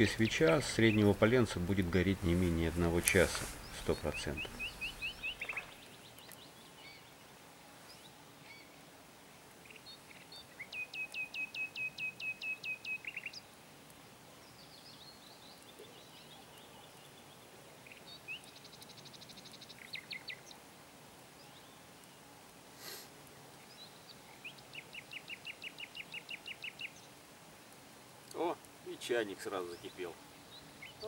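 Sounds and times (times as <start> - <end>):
songbird singing sharp notes: 0.0 - 7.1, 9.7 - 13.5
outdoor background noise: 0.0 - 31.0.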